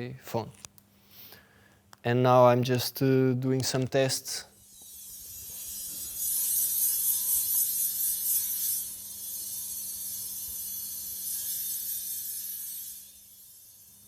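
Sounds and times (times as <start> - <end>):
high scratchy hiss from glass: 4.5 - 14.0.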